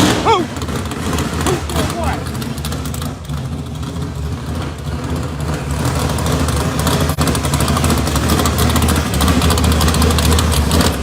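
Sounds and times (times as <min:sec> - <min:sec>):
muscle car engines running loudly: 0:00.0 - 0:11.0.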